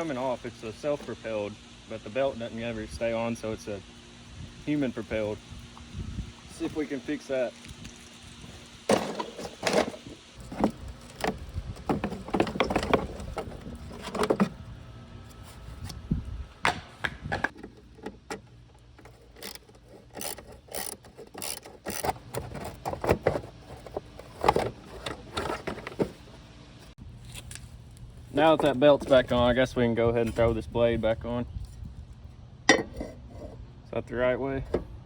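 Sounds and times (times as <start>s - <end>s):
clatter of hand tools and metal: 8.9s - 14.6s, 17.5s - 26.4s.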